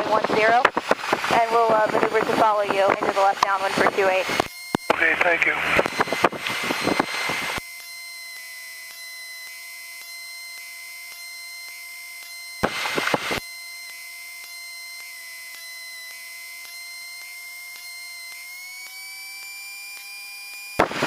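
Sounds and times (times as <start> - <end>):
burst of radio static: 0.0 - 7.6, 12.6 - 13.4, 20.8 - 21.0
radio hiss with high whine: 0.0 - 8.1, 12.3 - 13.8, 14.5 - 21.0
radio squelch tail: 0.2 - 7.6, 12.6 - 13.4.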